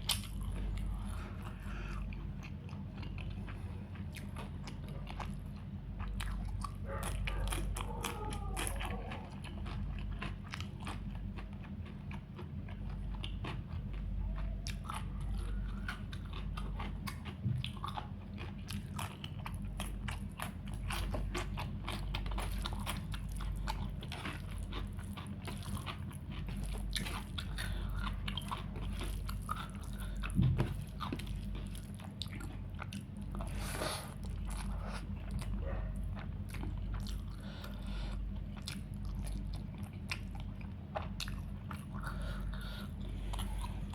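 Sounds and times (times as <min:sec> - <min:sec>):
low steady hum: 0:00.0 - 0:43.9
person chewing food: 0:00.0 - 0:43.9
low thump: 0:30.4 - 0:30.8.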